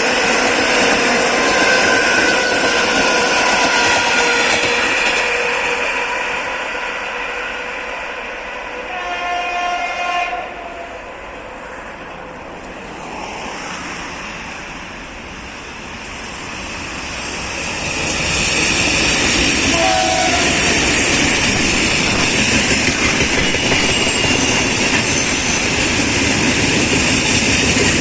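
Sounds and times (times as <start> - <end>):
train running with wheel clatter: 0.0 - 28.0
electric train horn: 1.5 - 11.2, 19.5 - 22.4.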